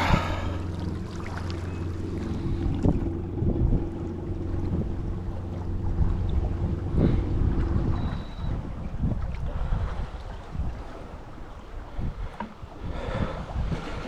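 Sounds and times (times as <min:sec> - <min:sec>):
electric trolling motor whine: 0:00.0 - 0:09.0
wind buffeting microphone: 0:00.0 - 0:14.0.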